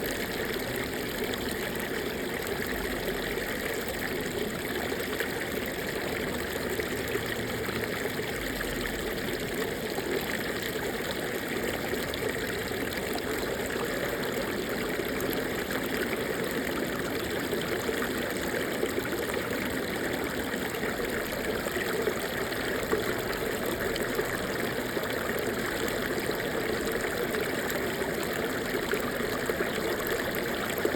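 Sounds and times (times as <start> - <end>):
stream babbling over rocks: 0.0 - 30.9.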